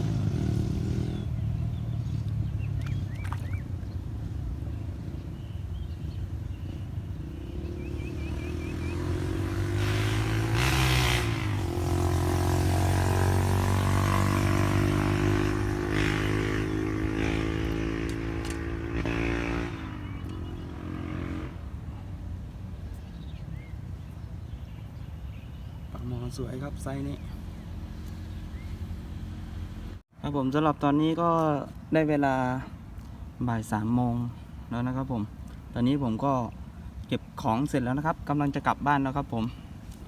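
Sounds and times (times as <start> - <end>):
small engine passing by: 0.0 - 3.2, 7.2 - 22.2.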